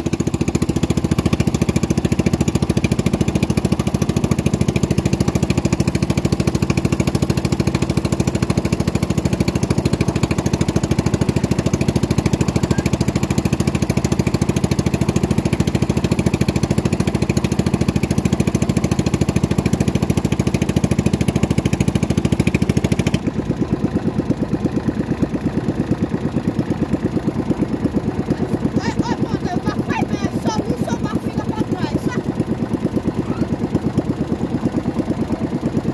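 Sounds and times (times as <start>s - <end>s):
motorboat engine running: 0.0s - 35.9s.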